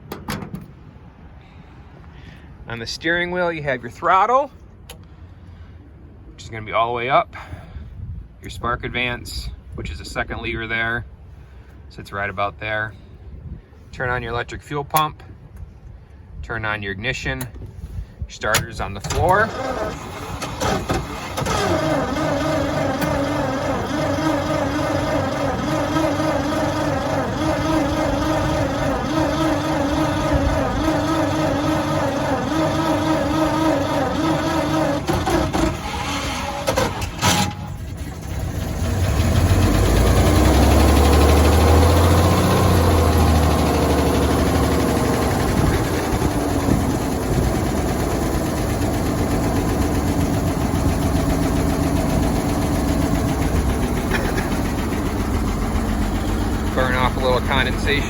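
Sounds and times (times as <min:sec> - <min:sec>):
starter motor cranking engine: 0:18.6 - 0:58.0
car engine idling: 0:19.2 - 0:58.0.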